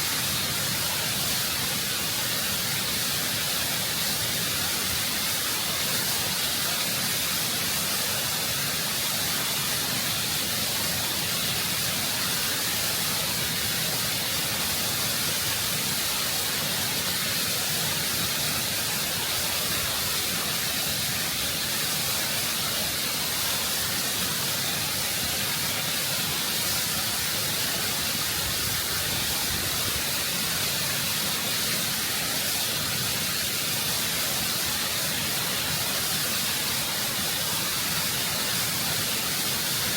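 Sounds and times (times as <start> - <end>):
waterfall rushing over rock: 0.0 - 39.9.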